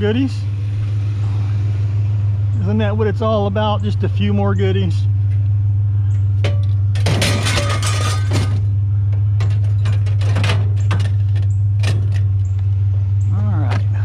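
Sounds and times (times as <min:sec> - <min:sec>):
steady low hum: 0:00.0 - 0:14.0
scrap metal clanking: 0:06.4 - 0:12.6.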